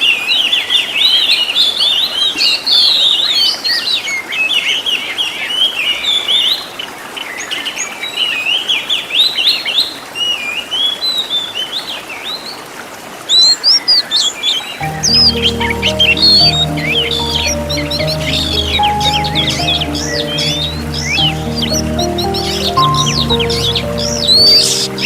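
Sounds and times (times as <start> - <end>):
bird singing chirps and trills: 14.8 - 25.0.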